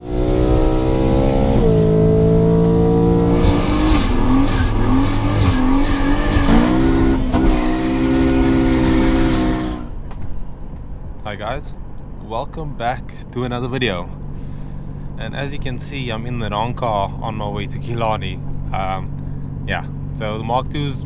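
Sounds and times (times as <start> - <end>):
car engine revving hard: 0.0 - 10.0
wind and road noise: 0.0 - 21.0.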